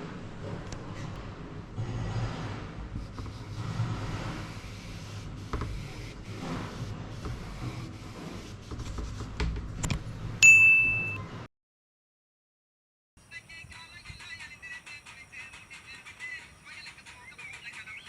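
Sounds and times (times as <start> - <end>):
low rumbling outdoor background: 0.0 - 11.5
bright bell-like ding: 10.4 - 11.2.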